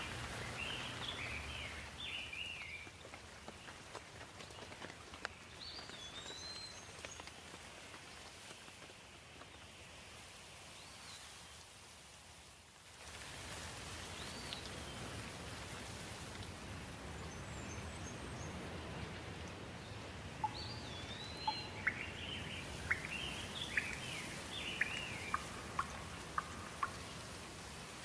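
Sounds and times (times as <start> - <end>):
songbirds singing: 0.0 - 3.7, 4.5 - 7.5, 16.7 - 28.0
water flowing: 19.5 - 28.0.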